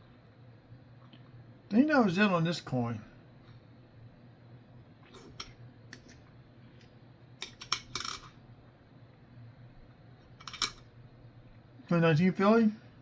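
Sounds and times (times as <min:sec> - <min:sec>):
coins clinking: 0:07.5 - 0:08.4.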